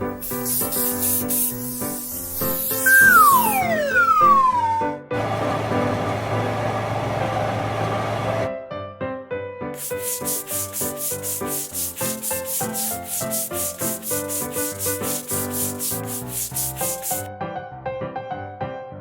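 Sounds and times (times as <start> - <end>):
rhythmic rasping rub strokes: 0.1 - 4.2, 9.8 - 17.3.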